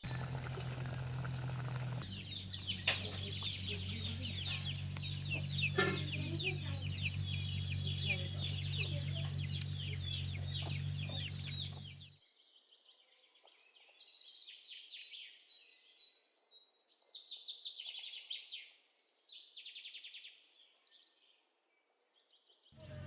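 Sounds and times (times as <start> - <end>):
low steady hum: 0.0 - 12.1
birds chirping and trilling: 0.0 - 12.3, 22.8 - 23.0.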